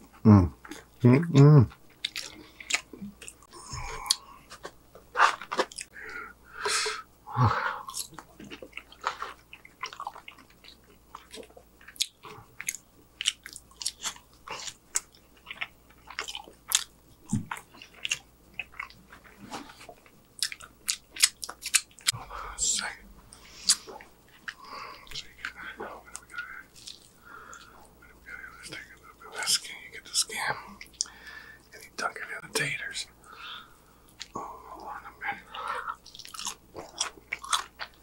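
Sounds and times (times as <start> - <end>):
person crunching food: 1.8 - 6.0, 7.8 - 27.7, 35.6 - 38.0.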